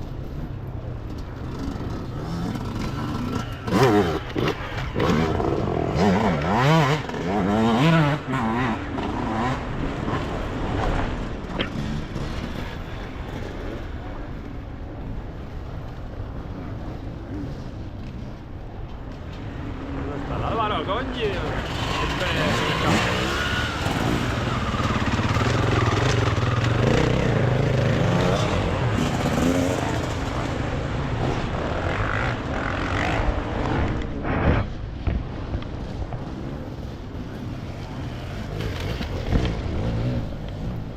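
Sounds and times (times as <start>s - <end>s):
motorcycle engine revving: 1.4s - 13.6s, 21.4s - 35.4s.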